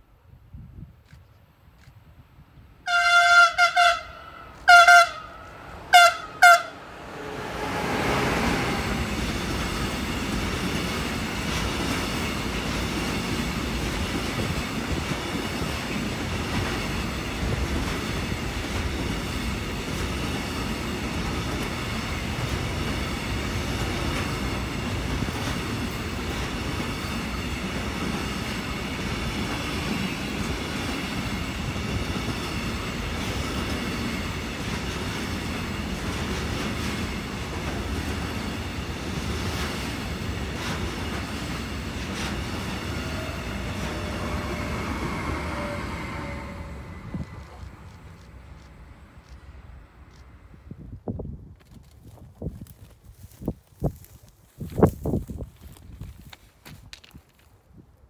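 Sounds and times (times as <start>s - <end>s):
locomotive horn: 2.8s - 9.1s, 42.8s - 48.1s
train wheels rumbling on rails: 3.5s - 51.0s.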